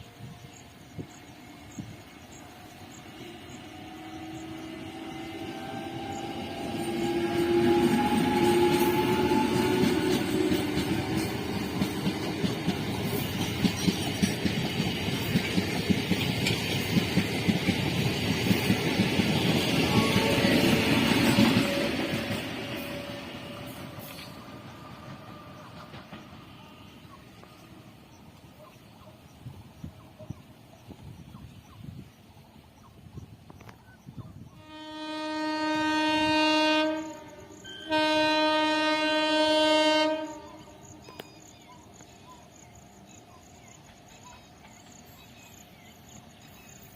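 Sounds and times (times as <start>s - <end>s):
low train rumble: 0.0s - 46.9s
train wheels clickety-clack: 0.9s - 31.8s, 41.0s - 46.9s
locomotive horn blasts: 3.9s - 11.2s, 19.8s - 23.8s, 34.6s - 40.8s.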